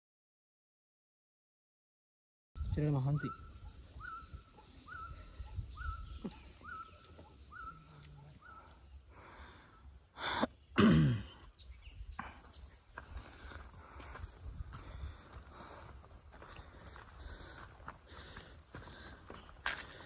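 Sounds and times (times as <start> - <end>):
bird chirping: 2.6 - 13.6.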